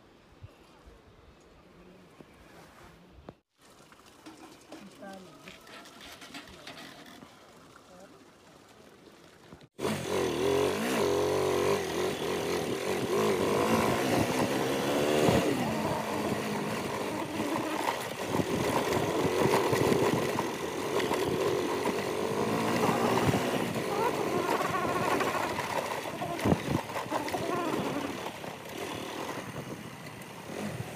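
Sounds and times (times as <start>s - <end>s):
motorcycle engine revving: 9.8s - 30.9s.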